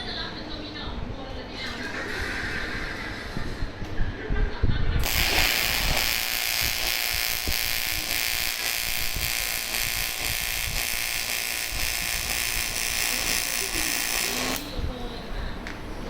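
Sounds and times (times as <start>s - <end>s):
welding arc buzzing hiss: 5.0s - 14.8s.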